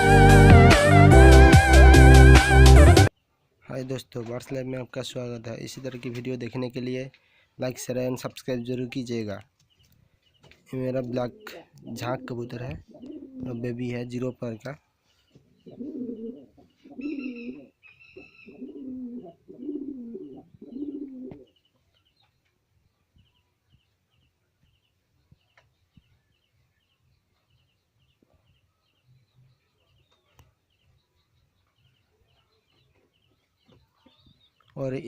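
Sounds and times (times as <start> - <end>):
rapid high bird chirping: 8.4 - 22.4
pigeons cooing: 10.8 - 14.0, 15.4 - 21.6.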